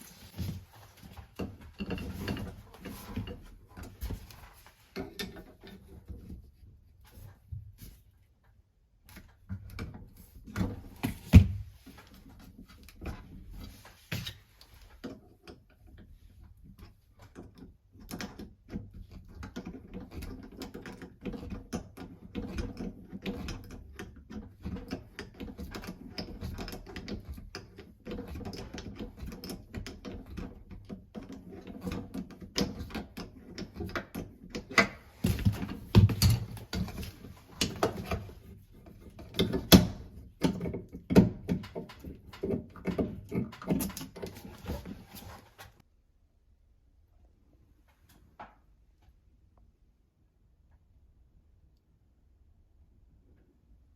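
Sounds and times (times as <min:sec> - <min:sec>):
tools clicking and tapping: 0:01.2 - 0:04.2, 0:16.8 - 0:44.9.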